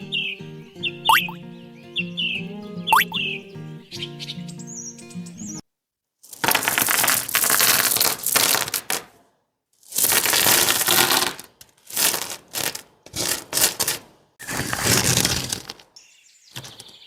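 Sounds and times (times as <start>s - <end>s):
dry material crunching: 6.2s - 9.1s, 9.8s - 16.0s.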